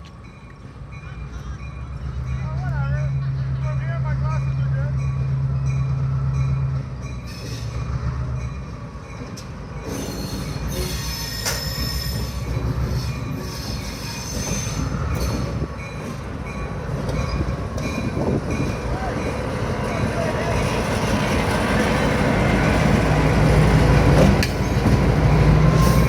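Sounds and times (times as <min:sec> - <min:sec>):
diesel locomotive engine humming: 0:00.0 - 0:26.0
rumble of train wheels: 0:00.0 - 0:26.0
steel wheels squealing on rails: 0:00.9 - 0:23.1, 0:24.2 - 0:26.0.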